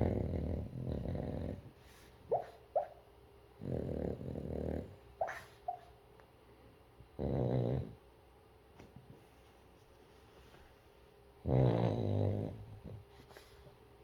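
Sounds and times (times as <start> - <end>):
dog snoring: 0.0 - 1.7, 3.6 - 5.4, 7.2 - 8.0, 11.4 - 13.0.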